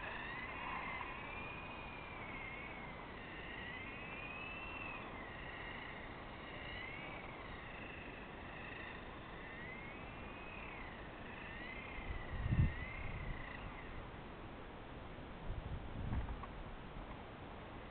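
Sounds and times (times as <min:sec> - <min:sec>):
toy car electric motor whining: 0:00.0 - 0:14.0.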